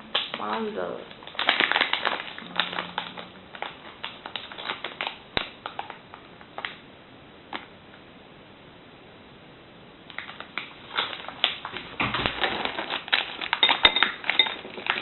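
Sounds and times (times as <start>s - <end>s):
packaging crinkling: 0.0s - 6.8s, 10.1s - 15.0s.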